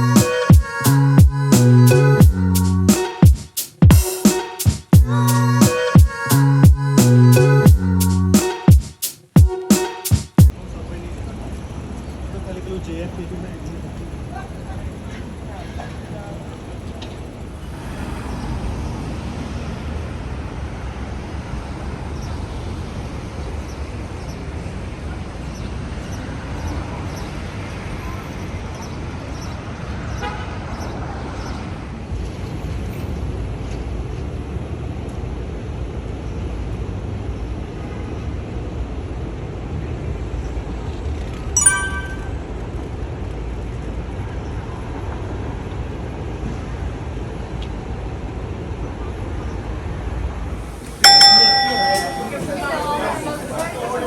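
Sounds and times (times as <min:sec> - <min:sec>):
street traffic rumble: 0:00.0 - 0:02.9, 0:10.5 - 0:41.5, 0:42.7 - 0:54.0
vehicle and road rumble: 0:10.5 - 0:22.8
metallic ding: 0:41.6 - 0:42.4, 0:51.0 - 0:52.5.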